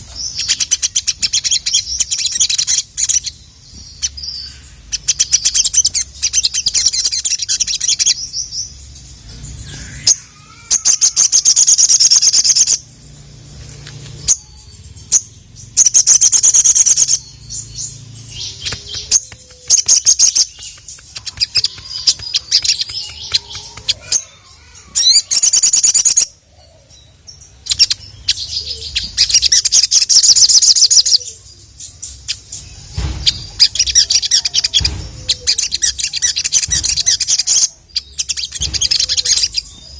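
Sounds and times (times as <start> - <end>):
bird singing high trills: 14.1 - 39.9.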